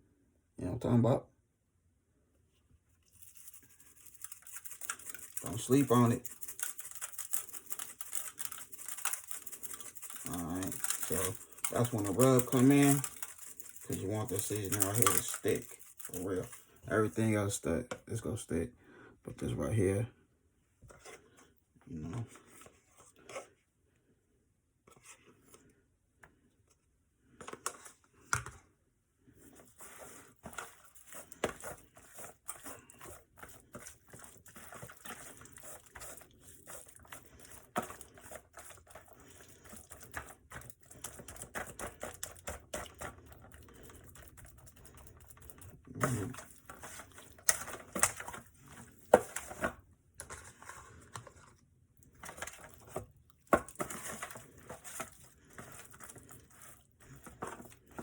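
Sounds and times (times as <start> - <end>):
hands rubbing raw poultry skin: 3.0 - 17.2.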